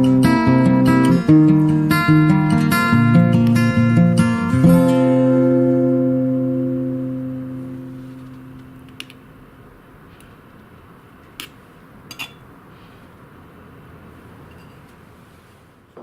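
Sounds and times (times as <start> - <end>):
acoustic guitar chord: 0.0 - 9.1.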